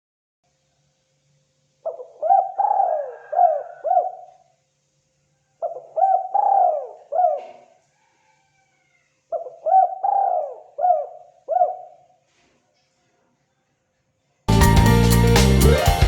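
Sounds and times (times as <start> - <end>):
dove cooing: 1.8 - 4.4, 5.6 - 7.8, 9.3 - 12.0.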